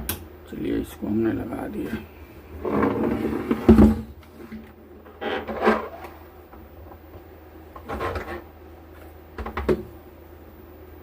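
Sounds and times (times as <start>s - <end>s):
equipment rubbing and scraping: 1.8s - 6.2s.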